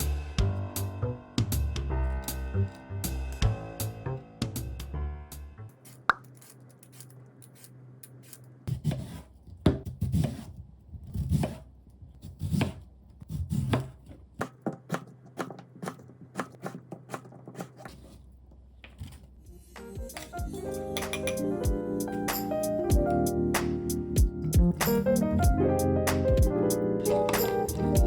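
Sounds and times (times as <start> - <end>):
knife cutting on cutting board: 5.8 - 11.6, 12.2 - 18.2.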